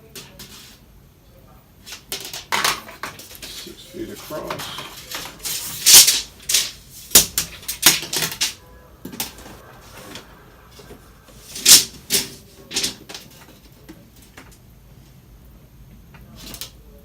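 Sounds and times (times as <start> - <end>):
metal tape measure rattling: 1.8 - 8.6, 11.4 - 13.5.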